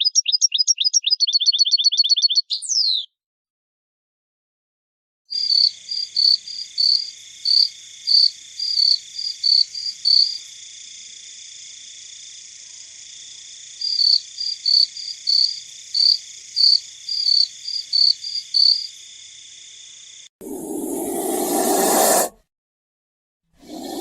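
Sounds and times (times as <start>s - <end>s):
insect chirping: 0.0s - 2.7s, 5.3s - 22.3s, 23.6s - 24.0s
high insect buzzing chorus: 5.4s - 22.2s.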